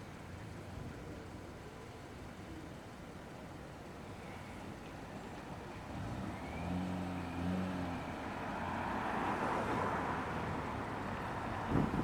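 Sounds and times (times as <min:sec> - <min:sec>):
tyre and road noise: 0:08.7 - 0:12.0.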